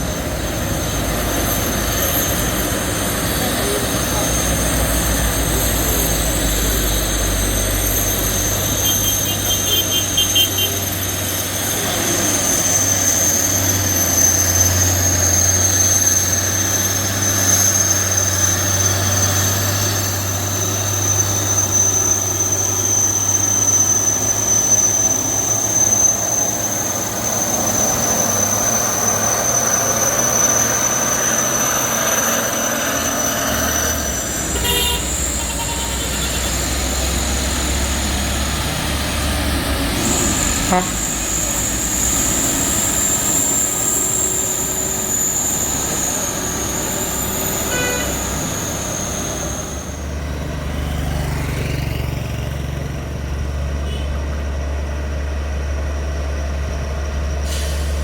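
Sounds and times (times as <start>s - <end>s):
diesel truck engine running: 0.0s - 58.0s
high whine: 19.9s - 50.4s.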